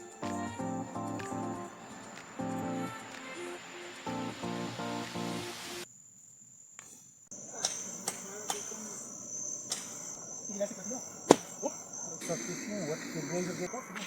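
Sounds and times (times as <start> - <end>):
music tune: 0.0 - 5.8
high-pitched insect trill: 0.0 - 14.0.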